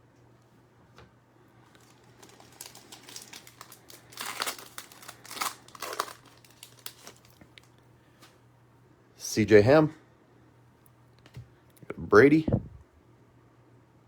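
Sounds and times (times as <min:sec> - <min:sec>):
plastic wrapper crinkling and tearing: 0:01.7 - 0:07.8.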